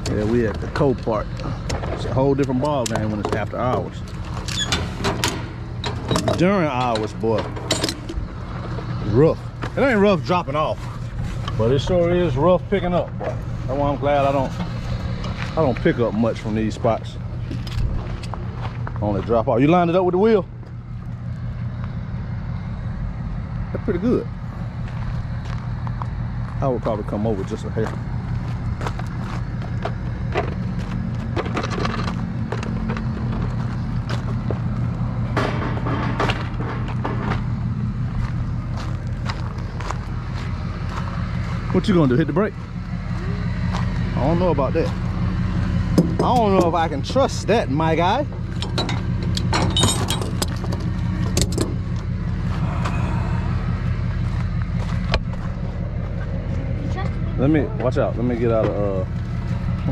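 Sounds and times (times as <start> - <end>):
metal clanks and knocks: 0.0 - 9.8, 29.0 - 39.3, 45.8 - 47.4, 48.1 - 52.1
truck engine running: 0.0 - 59.9.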